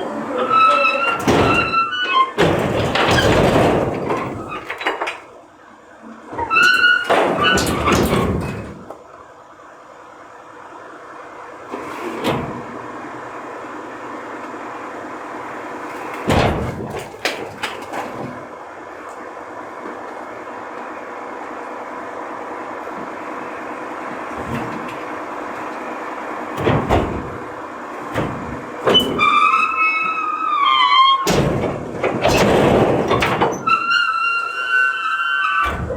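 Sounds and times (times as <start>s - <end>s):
garbage truck humming: 0.0s - 35.9s
bangs and clatter: 0.5s - 5.4s, 6.3s - 8.9s, 15.7s - 18.6s, 24.3s - 34.2s, 35.6s - 35.9s.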